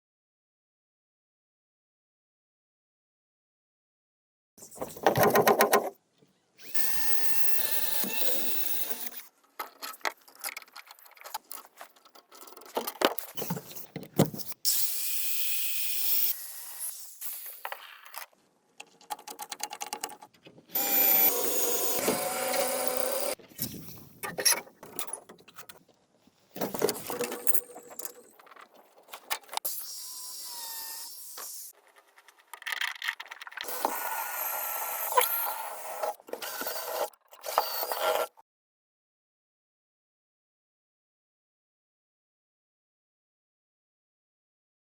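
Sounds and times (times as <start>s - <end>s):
knocks and scraping on bamboo: 4.8s - 5.9s
power tool running: 20.8s - 23.4s.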